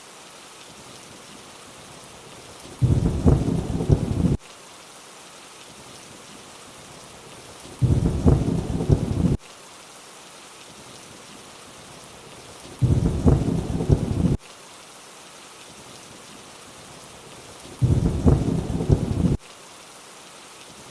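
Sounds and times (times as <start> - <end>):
steady rainfall hiss: 0.0 - 20.9
deep thunder rumbles: 2.8 - 4.4, 7.8 - 9.4, 12.8 - 14.4, 17.8 - 19.4.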